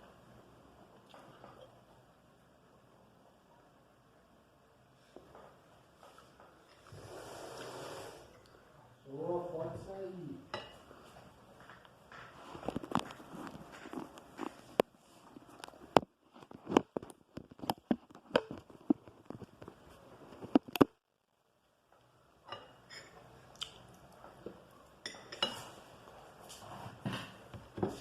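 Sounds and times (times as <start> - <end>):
person chewing meat: 23.5 - 24.0.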